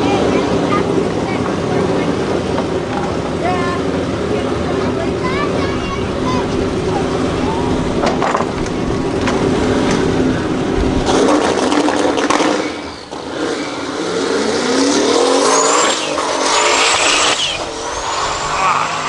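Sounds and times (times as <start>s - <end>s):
loud rush of noise: 0.0s - 19.0s
race car engine running hard: 0.0s - 19.0s
brief high squeals: 15.5s - 19.0s.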